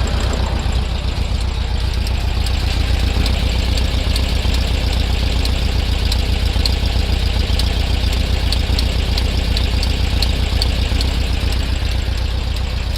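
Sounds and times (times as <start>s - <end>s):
car engine idling: 0.0s - 12.9s
sharp popping tick: 0.1s - 12.9s.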